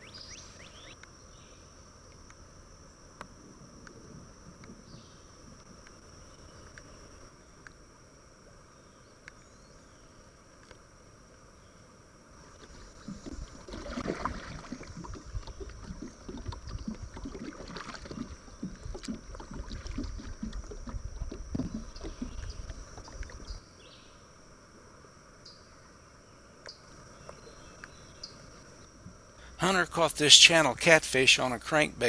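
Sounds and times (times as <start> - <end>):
high insect drone: 0.0 - 32.0
water splashing around kayak: 12.4 - 23.6.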